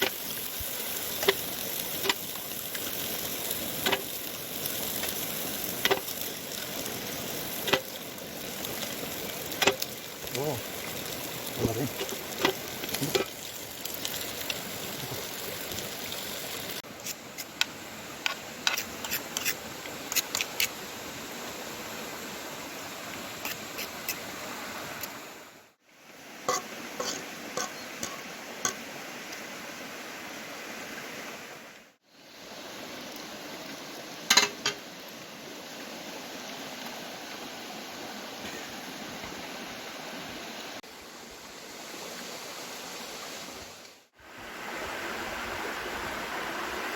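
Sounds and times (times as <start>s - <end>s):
stream rushing: 0.0s - 46.9s
metal utensils clinking on pot: 5.8s - 6.2s, 11.9s - 13.4s, 26.5s - 28.8s, 34.3s - 34.8s.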